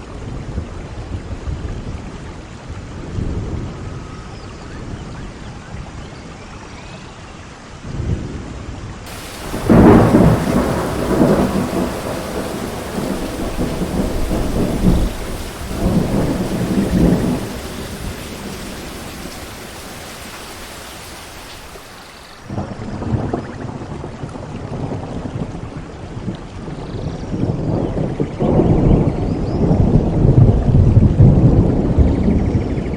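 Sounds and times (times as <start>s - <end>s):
rolling thunder: 9.1s - 23.0s
steady rain: 9.1s - 23.0s.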